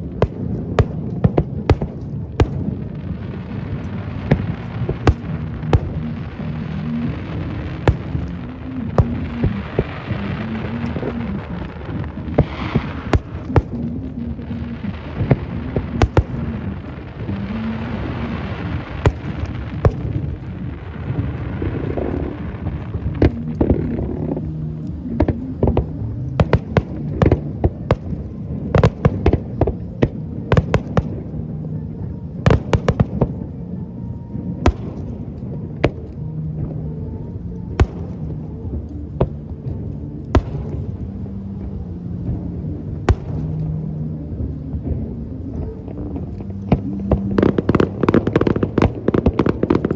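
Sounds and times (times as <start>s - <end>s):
fireworks bangs: 0.0s - 31.4s
fireworks crackling hiss: 0.0s - 49.9s.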